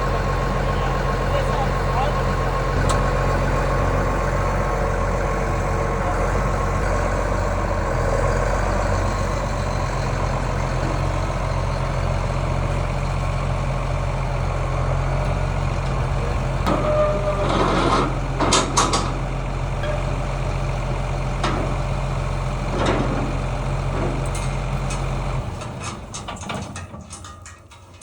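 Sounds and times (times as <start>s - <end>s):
heavy engine idling: 0.0s - 28.0s.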